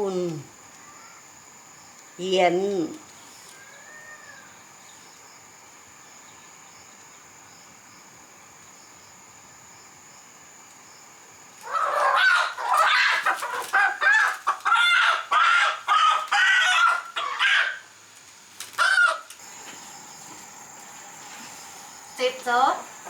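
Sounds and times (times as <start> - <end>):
insects buzzing: 0.0 - 23.0
chicken calling: 3.4 - 4.6, 11.6 - 17.9, 18.6 - 21.6.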